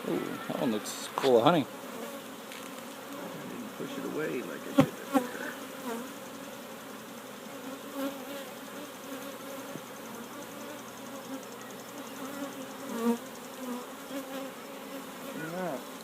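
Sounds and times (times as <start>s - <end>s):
bees buzzing: 0.0s - 16.0s
single bee flying past: 1.7s - 16.0s.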